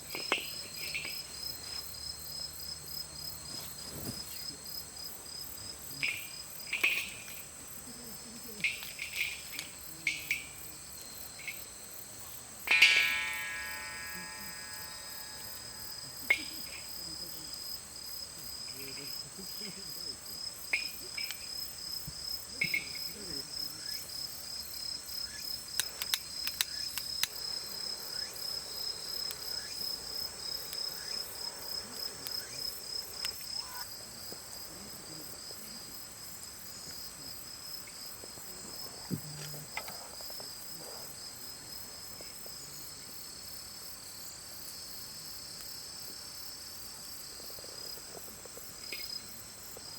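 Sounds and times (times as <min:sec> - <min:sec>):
insects chirping in trills: 0:00.0 - 0:49.9
faint clicks: 0:25.8 - 0:27.4.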